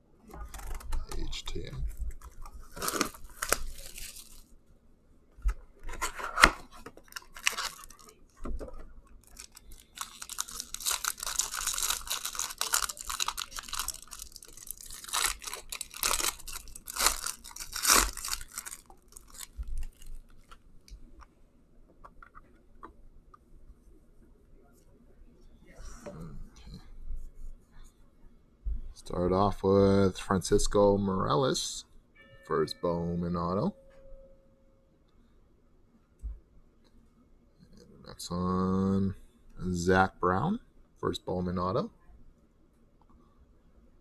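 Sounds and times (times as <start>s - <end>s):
wrapping torn and crinkled: 0.4s - 4.5s, 6.0s - 8.4s, 9.2s - 20.6s.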